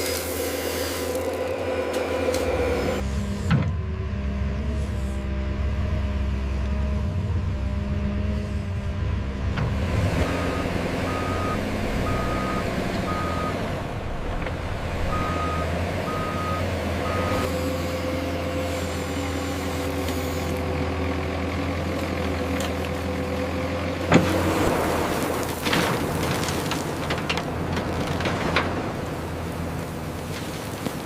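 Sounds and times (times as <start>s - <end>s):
diesel engine drone: 0.0s - 31.0s
reversing alarm beeping: 10.2s - 13.7s, 15.0s - 17.6s.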